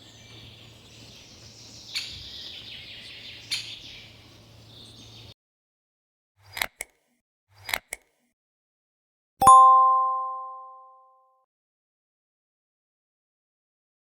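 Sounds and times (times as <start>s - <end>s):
bell-like ding: 9.4s - 11.1s.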